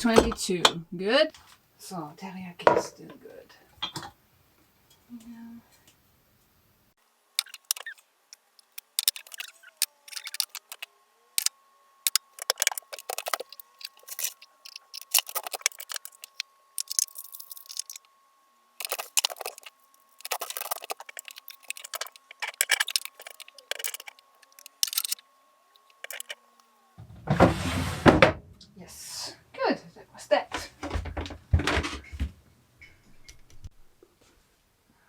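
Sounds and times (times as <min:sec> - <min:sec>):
packages rustling and clicking: 0:12.1 - 0:18.0, 0:18.8 - 0:25.2, 0:25.8 - 0:26.4.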